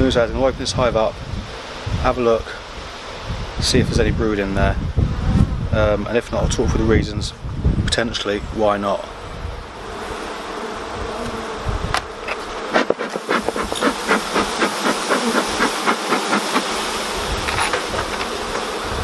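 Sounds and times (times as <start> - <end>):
bee smoker bellows puffing: 6.2 - 19.0
bees buzzing: 8.5 - 19.0.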